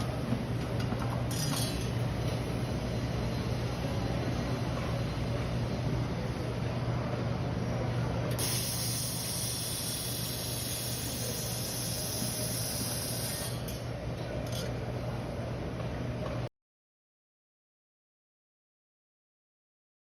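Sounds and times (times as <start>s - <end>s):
gas hissing from welding torch: 8.3s - 13.6s
welding machine humming: 8.3s - 13.9s.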